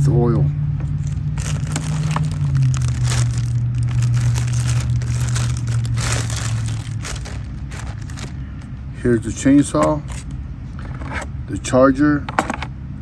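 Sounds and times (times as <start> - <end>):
steady low hum: 0.0 - 11.7
plastic packaging rustling: 0.8 - 8.8, 9.4 - 10.4.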